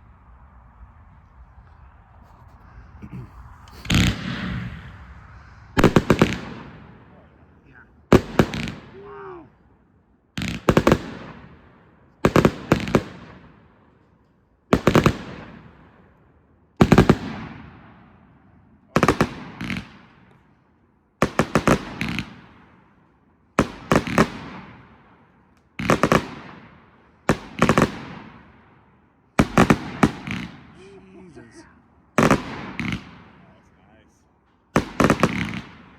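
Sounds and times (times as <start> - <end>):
fireworks bursting: 0.0 - 9.1, 29.4 - 35.9.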